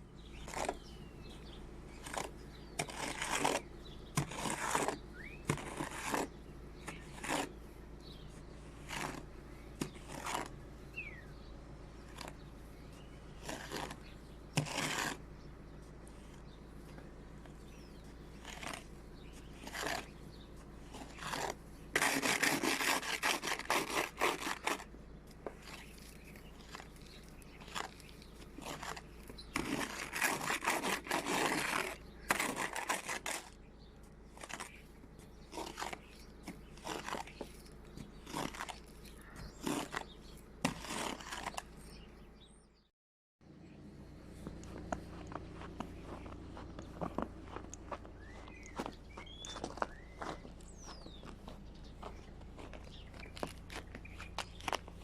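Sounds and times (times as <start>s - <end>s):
brushing and scraping snow off car: 0.4s - 11.2s, 12.0s - 24.9s, 25.5s - 33.6s, 34.4s - 42.1s.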